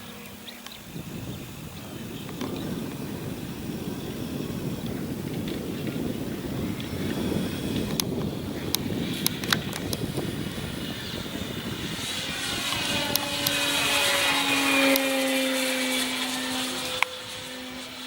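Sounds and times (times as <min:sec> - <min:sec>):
model plane motor droning: 0:00.0 - 0:18.0
sharp clicks: 0:07.8 - 0:10.1, 0:12.6 - 0:13.6.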